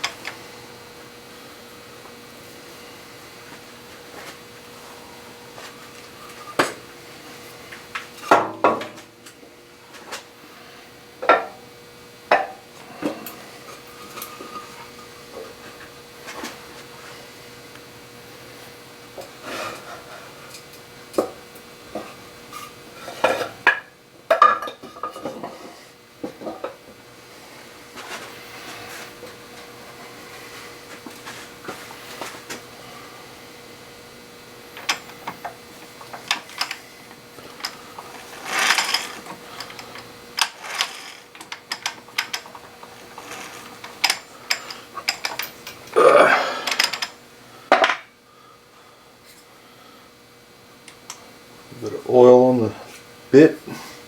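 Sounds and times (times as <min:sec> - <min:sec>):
faint steady hum: 0:00.0 - 0:54.0
metal tools clinking and scraping: 0:13.3 - 0:15.3, 0:37.4 - 0:48.0.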